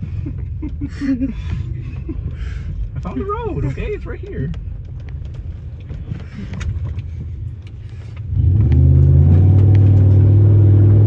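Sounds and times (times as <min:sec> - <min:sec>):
knocks and rattles: 0:00.0 - 0:08.1
car exhaust rumbling: 0:00.0 - 0:11.0.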